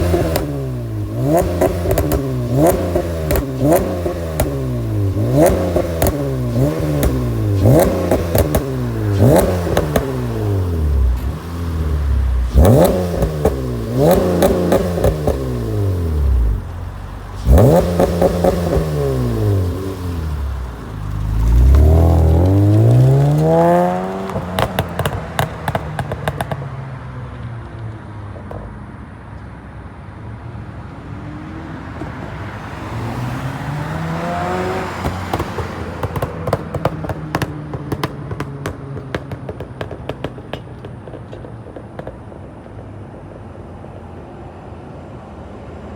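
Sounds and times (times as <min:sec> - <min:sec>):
car engine revving: 0:00.0 - 0:27.2, 0:32.5 - 0:40.4
exhaust pops and crackles: 0:00.0 - 0:28.8, 0:34.9 - 0:42.9.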